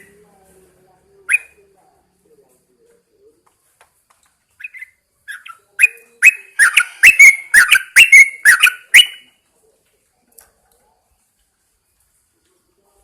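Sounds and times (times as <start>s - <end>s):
bird singing sharp notes: 4.6s - 9.4s.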